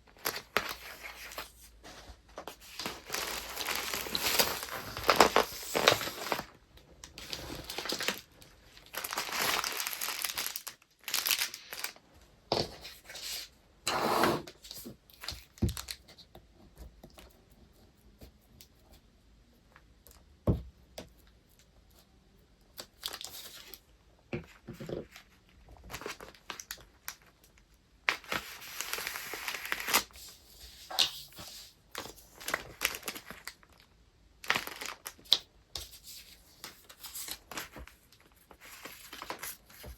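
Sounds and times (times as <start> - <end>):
paper crinkling and rustling: 0.0 - 13.5, 22.7 - 39.9.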